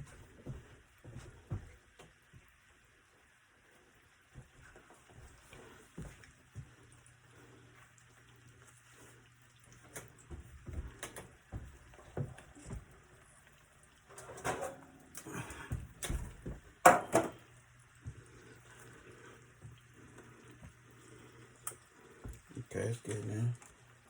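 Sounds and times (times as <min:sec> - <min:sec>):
cookware and utensils clattering: 0:14.1 - 0:15.7, 0:16.8 - 0:17.5.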